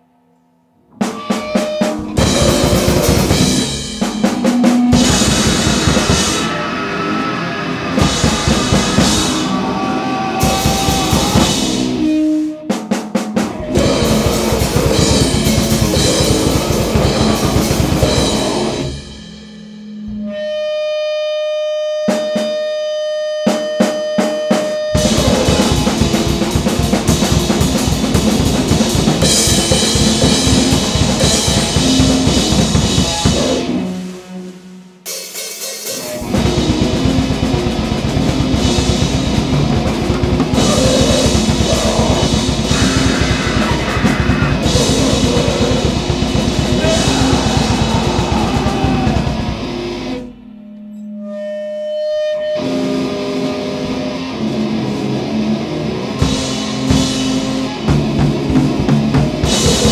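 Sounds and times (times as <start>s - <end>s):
distorted guitar noise: 0.9s - 21.2s, 24.2s - 35.0s, 36.1s - 51.1s, 52.5s - 59.9s
fast drumming: 1.0s - 12.1s, 12.7s - 19.2s, 24.9s - 34.1s, 35.1s - 50.2s, 56.2s - 59.9s.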